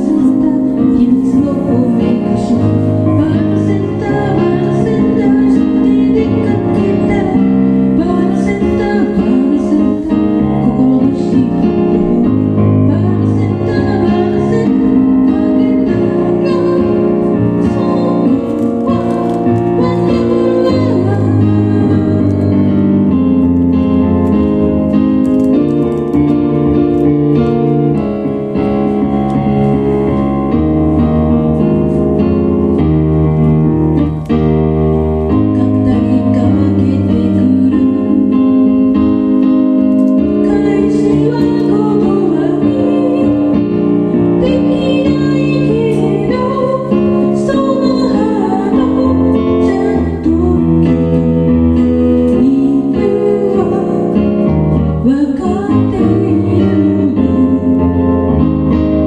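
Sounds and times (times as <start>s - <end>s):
person singing: 0.0s - 23.2s, 35.3s - 39.2s, 40.2s - 58.2s
bass: 0.0s - 59.0s
keyboard chords: 0.0s - 59.0s.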